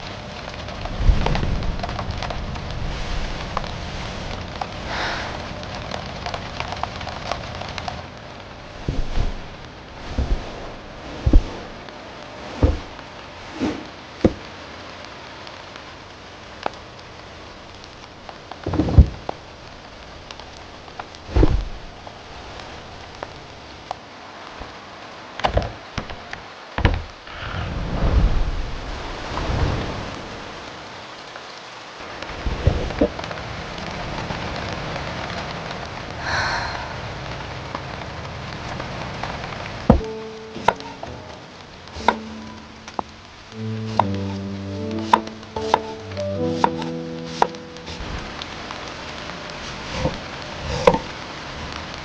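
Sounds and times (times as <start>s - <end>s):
low rumbles: 0.0s - 30.8s, 35.9s - 46.3s
rain hiss: 0.0s - 52.0s
thumps and knocks: 8.8s - 11.8s, 12.6s - 13.0s, 14.2s - 14.5s, 18.7s - 19.4s, 25.4s - 27.2s, 39.9s - 41.3s, 41.9s - 43.1s.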